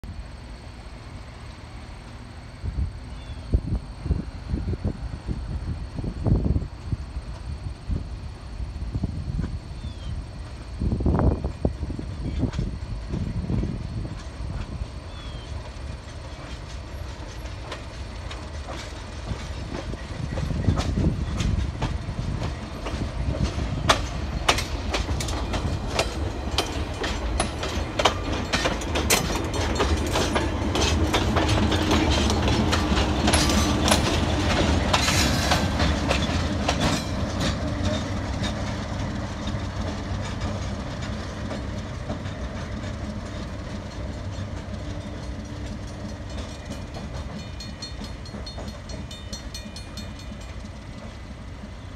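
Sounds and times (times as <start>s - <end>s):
diesel train engines rumbling: 0.0s - 51.9s
wheels clicking over track: 14.2s - 51.9s.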